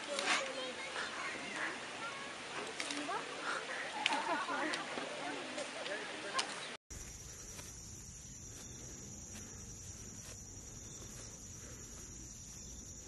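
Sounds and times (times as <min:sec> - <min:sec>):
high-pitched insect drone: 0:06.9 - 0:13.0.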